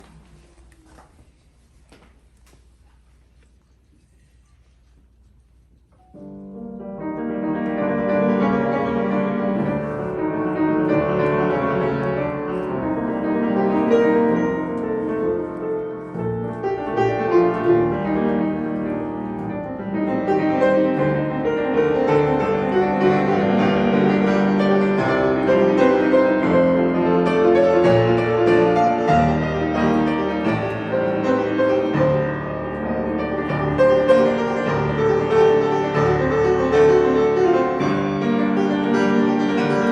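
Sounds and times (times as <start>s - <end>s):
piano music: 6.0s - 39.9s.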